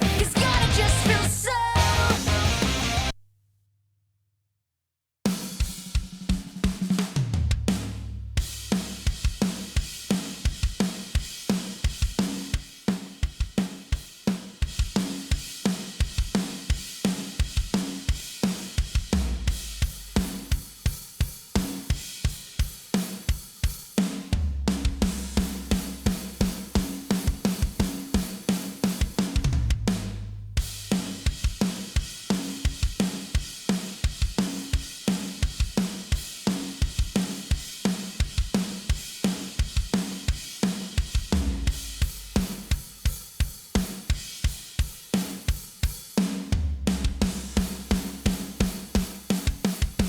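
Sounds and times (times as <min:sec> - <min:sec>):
rock drum kit beat: 0:00.0 - 0:03.2, 0:05.3 - 0:50.0.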